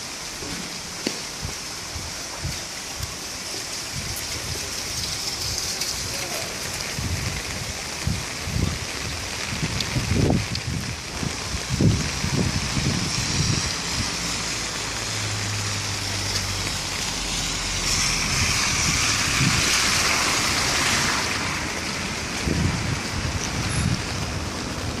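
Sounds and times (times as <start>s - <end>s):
hard rain hissing: 0.0s - 25.0s
wind buffeting microphone: 1.3s - 14.4s, 18.2s - 25.0s.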